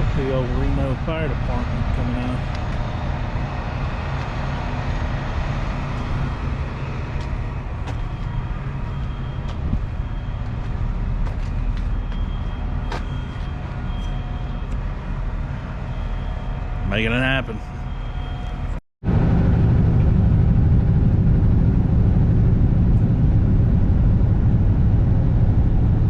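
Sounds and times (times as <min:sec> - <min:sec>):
diesel truck engine humming: 0:00.0 - 0:18.7.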